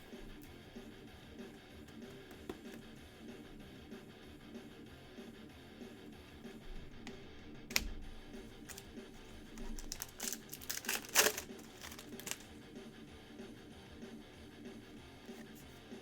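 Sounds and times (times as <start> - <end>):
card pack wrappers crinkling: 7.7 - 12.5.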